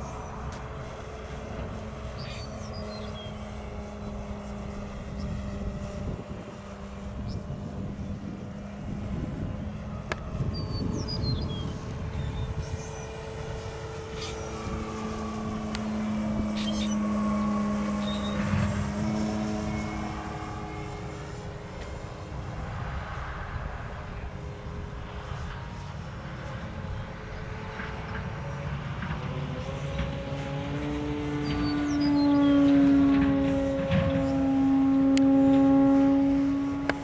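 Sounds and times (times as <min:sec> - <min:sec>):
model plane propeller hum: 0:00.0 - 0:37.0.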